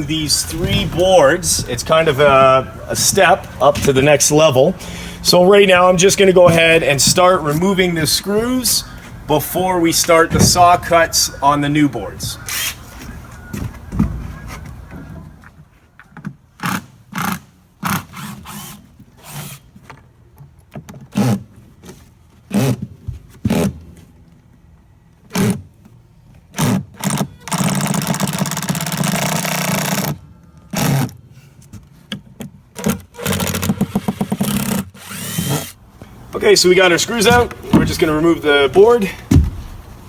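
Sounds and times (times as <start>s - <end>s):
power driver whirring: 32.8s - 35.8s.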